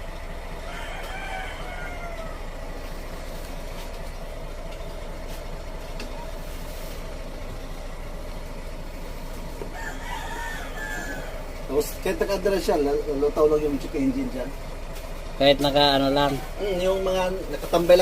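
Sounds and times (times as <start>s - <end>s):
van engine idling: 0.0s - 18.0s
rooster crowing: 0.5s - 3.1s, 9.5s - 11.7s.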